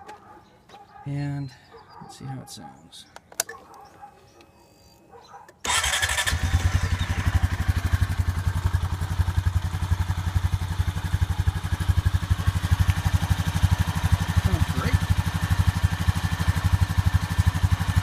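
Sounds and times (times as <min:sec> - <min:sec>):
atv engine starting and idling: 0:05.6 - 0:18.0.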